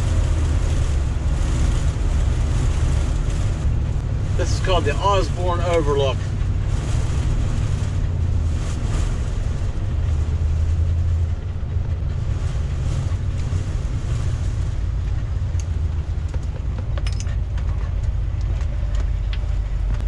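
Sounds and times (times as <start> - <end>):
engine and road rumble: 0.0 - 20.0
short clicks and rattles: 16.4 - 19.4.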